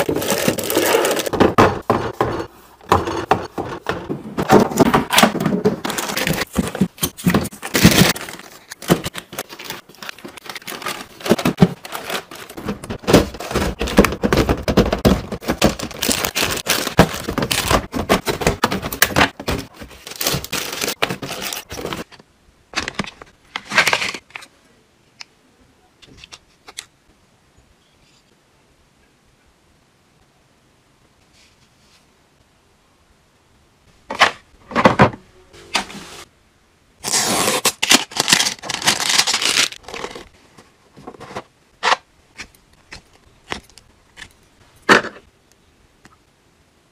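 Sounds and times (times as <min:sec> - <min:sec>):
packaging crinkling and tearing: 0:00.0 - 0:01.3, 0:05.1 - 0:22.1, 0:37.0 - 0:40.4.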